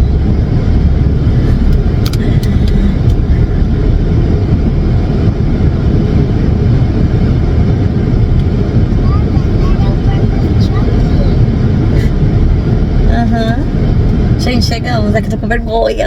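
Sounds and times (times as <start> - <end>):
car engine and tyres rumbling: 0.0 - 16.0
sharp clicks: 1.7 - 3.2.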